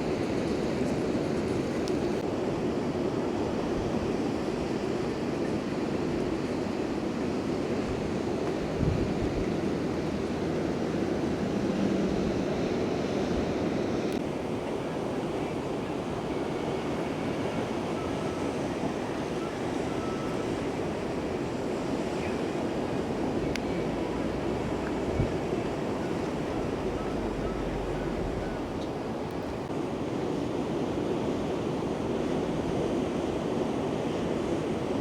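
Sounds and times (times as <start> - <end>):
wind rumbling on microphone: 0.0 - 14.2, 20.0 - 30.1
ocean waves breaking: 0.0 - 35.0.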